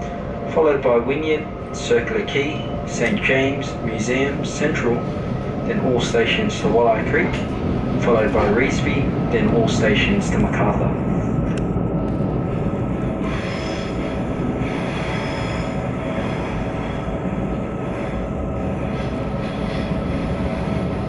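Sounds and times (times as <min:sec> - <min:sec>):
train wheels rumbling on track: 0:00.0 - 0:21.0
high wheel squeal: 0:13.2 - 0:16.9.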